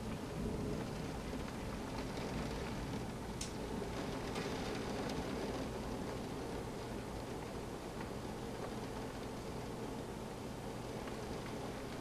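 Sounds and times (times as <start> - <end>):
low thunder rumble: 0.0 - 12.0
sharp raindrop ticks: 0.0 - 12.0
steady rain: 0.0 - 12.0.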